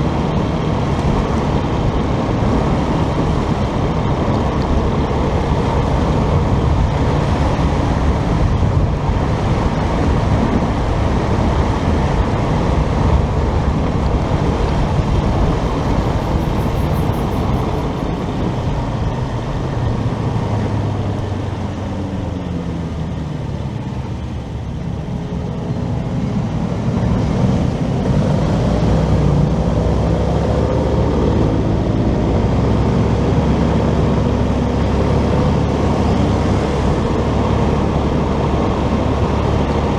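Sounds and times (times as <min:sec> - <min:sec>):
wind on microphone: 0:00.0 - 0:23.1
road noise: 0:00.0 - 0:39.9
motorcycle engine: 0:13.5 - 0:24.6.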